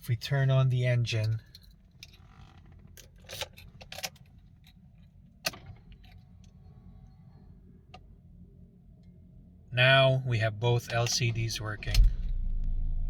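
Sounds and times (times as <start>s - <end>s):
faint low hum: 0.0s - 13.0s
car keys jangling: 1.1s - 6.6s.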